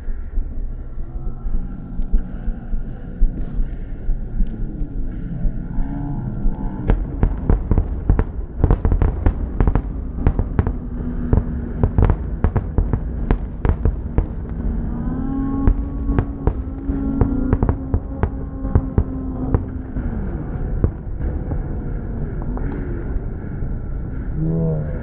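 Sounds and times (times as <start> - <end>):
low rumble: 0.0 - 25.0
steady hum: 0.0 - 25.0
fireworks bangs: 6.9 - 14.6, 15.6 - 19.7.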